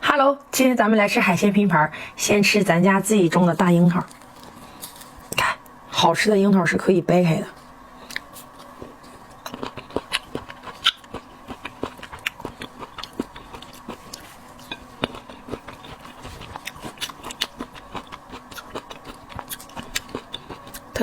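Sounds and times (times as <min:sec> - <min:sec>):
chewing crisp cherries: 0:08.0 - 0:21.0.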